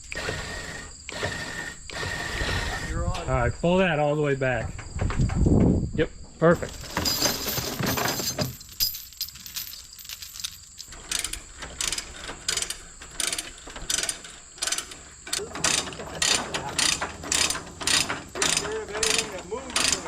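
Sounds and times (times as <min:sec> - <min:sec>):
ratchet strap clicking: 0:11.1 - 0:20.0.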